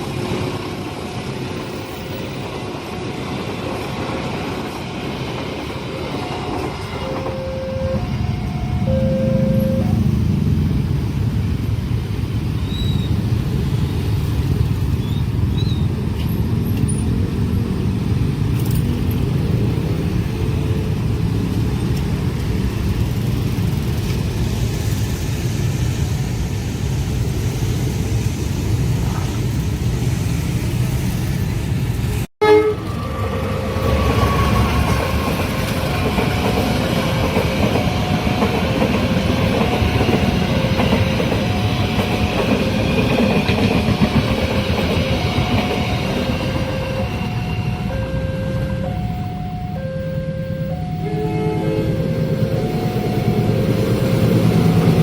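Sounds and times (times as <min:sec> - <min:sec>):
train wheels rumbling: 0:00.0 - 0:49.6, 0:50.8 - 0:55.0
level crossing warning tones: 0:07.0 - 0:10.2, 0:32.4 - 0:55.0.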